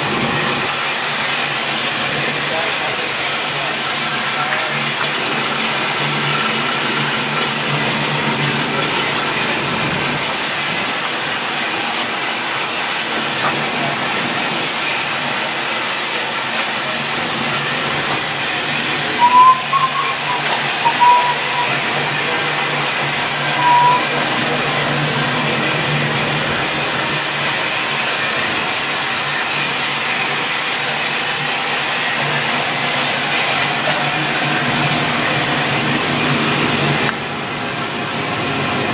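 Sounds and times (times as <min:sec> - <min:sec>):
steam locomotive hissing: 0:00.0 - 0:38.9
short high chirps: 0:19.2 - 0:22.0, 0:23.4 - 0:24.2.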